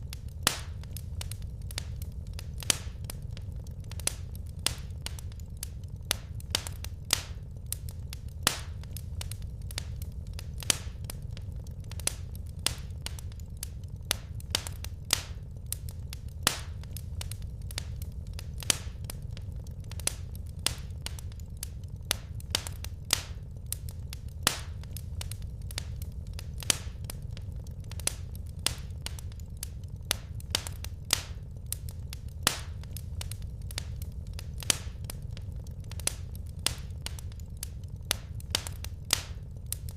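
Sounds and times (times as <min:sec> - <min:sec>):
low rumble of burning: 0:00.0 - 0:39.9
wood fire crackling: 0:00.0 - 0:39.9.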